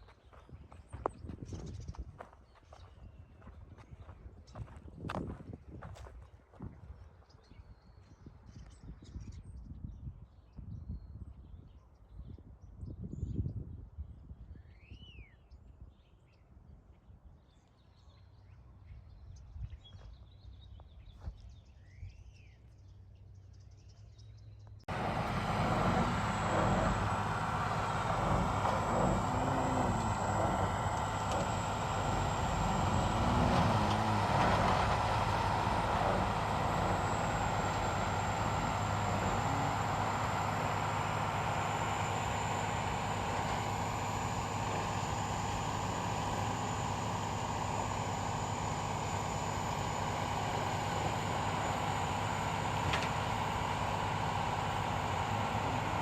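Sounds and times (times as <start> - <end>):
machine tool running with whine: 24.9 - 56.0.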